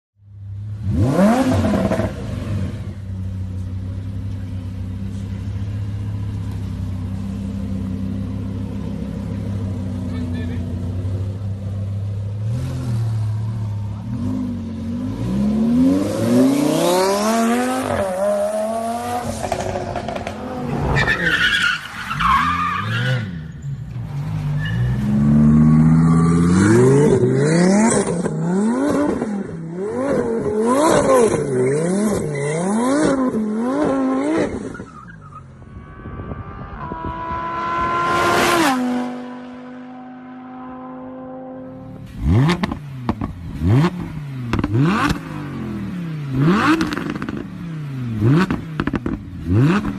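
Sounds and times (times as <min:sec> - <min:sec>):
sports car engine revving: 0:00.5 - 0:21.4, 0:25.0 - 0:49.9
tyre squeal: 0:20.9 - 0:26.6, 0:34.4 - 0:36.8.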